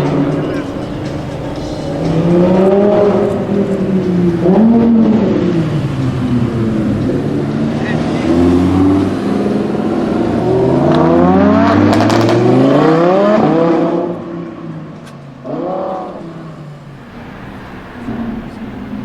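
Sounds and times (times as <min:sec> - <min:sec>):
exhaust pops: 0:00.0 - 0:16.6
car engine accelerating: 0:00.0 - 0:19.0
engine rev: 0:00.0 - 0:19.0.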